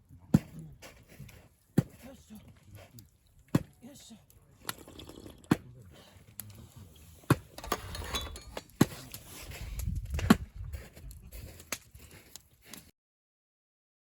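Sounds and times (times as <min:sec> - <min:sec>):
sharp knocks and clinks: 0:07.6 - 0:08.8.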